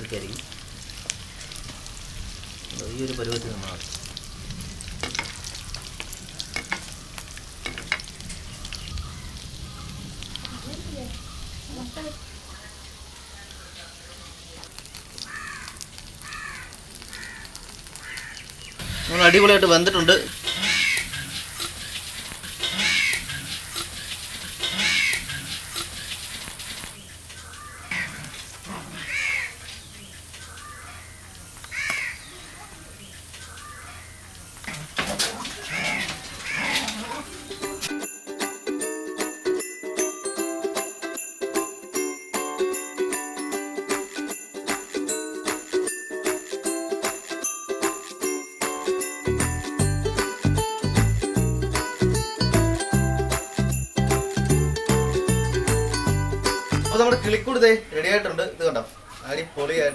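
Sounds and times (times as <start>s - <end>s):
food deep-frying in hot oil: 0.0s - 37.9s
crows cawing: 8.5s - 11.4s, 15.2s - 26.4s, 27.3s - 37.9s
sharp clicks and crackles: 14.6s - 18.9s.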